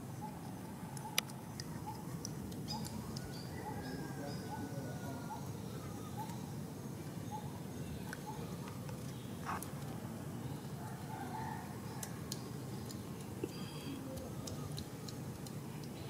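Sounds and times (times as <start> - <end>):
faint clicks: 12.0 - 16.0.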